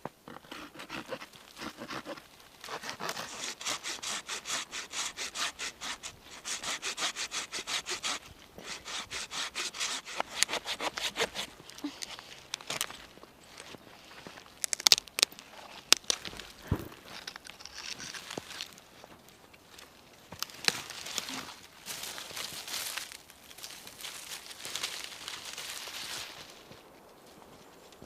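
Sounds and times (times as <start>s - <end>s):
hand saw cutting wood: 0.3s - 11.6s.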